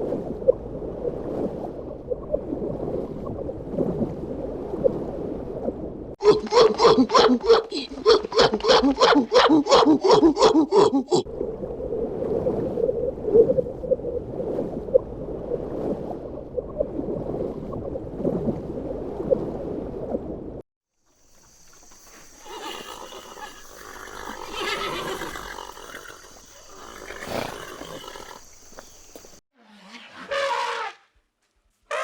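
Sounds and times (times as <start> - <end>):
horse neighing: 22.4 - 28.4.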